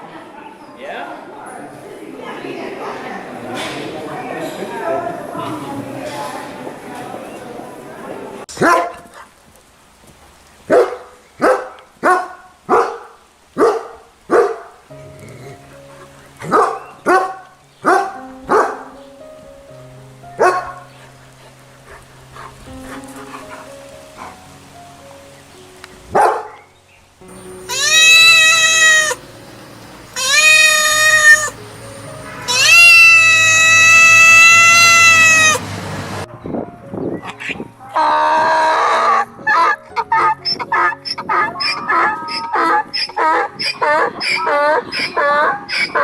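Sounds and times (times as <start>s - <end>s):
dog barking: 8.6s - 9.3s, 10.7s - 14.8s, 16.0s - 19.0s, 20.4s - 21.1s, 26.1s - 26.7s, 38.9s - 46.0s
animal calling: 27.3s - 35.6s, 37.2s - 46.0s.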